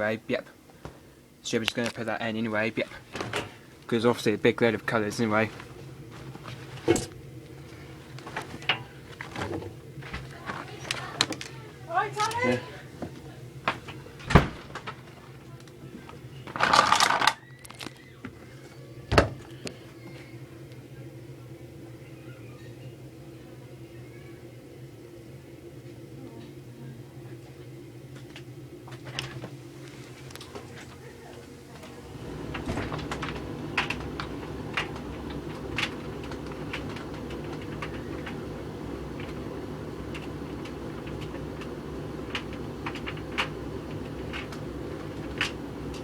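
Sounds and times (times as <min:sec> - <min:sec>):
tumble dryer humming: 0:00.0 - 0:46.0
laundry rustling: 0:02.0 - 0:17.3, 0:29.0 - 0:46.0.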